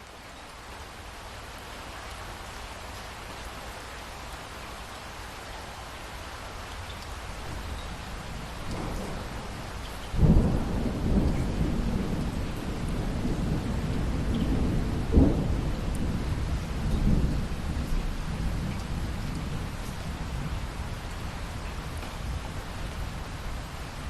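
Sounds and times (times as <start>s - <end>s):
steady rain: 0.0s - 24.0s
thunder rumbling: 8.4s - 20.6s.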